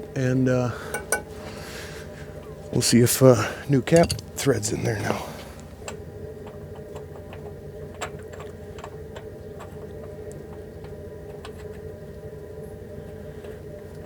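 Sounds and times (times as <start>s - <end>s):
steady low hum: 0.0s - 8.0s
clicks and taps on metal parts: 4.0s - 4.4s.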